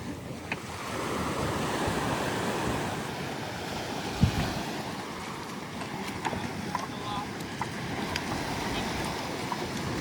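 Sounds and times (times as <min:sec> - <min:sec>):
ocean waves breaking: 0:00.0 - 0:10.0.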